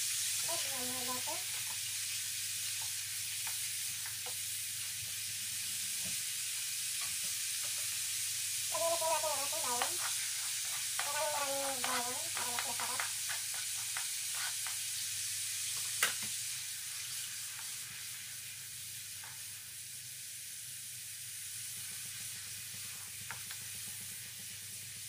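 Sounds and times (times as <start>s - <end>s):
garlic sizzling in butter: 0.0s - 25.0s
wooden spatula scraping wok: 8.8s - 14.8s.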